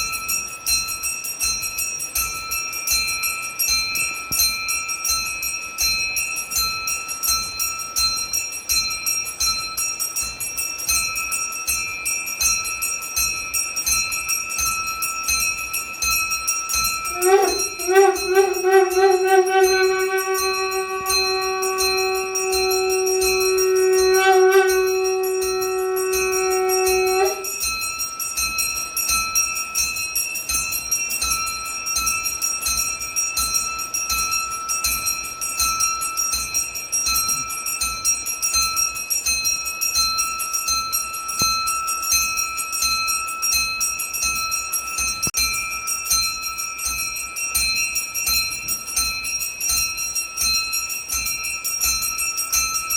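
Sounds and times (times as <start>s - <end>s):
brass bells ringing: 14.8s - 29.4s
horn-like blown note: 17.1s - 27.6s.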